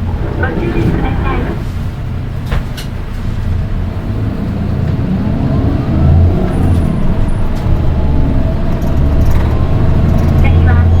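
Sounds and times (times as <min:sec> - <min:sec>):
bus diesel engine pulling: 0:00.0 - 0:11.0.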